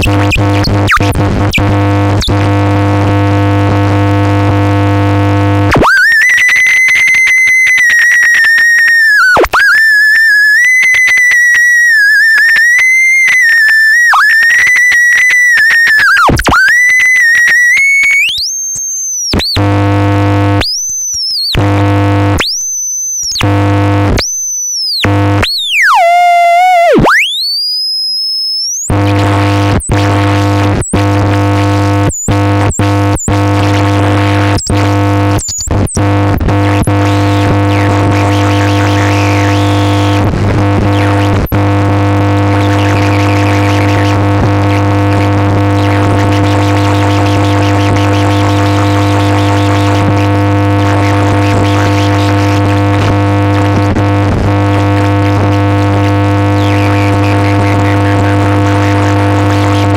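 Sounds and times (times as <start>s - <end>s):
wavering theremin tone: 5.8s - 29.0s.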